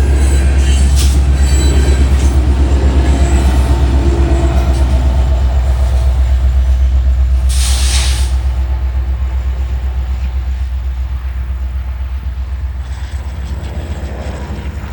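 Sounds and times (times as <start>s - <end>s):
freight train rolling past: 0.0s - 14.9s
short hiss: 7.5s - 8.4s.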